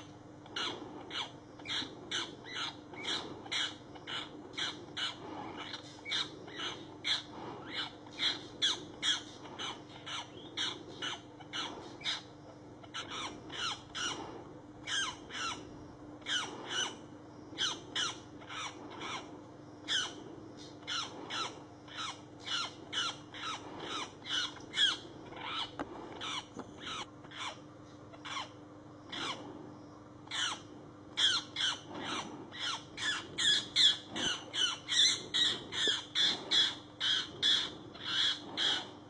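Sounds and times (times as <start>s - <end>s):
bird squawking harshly: 28.2s - 29.4s, 30.3s - 39.0s.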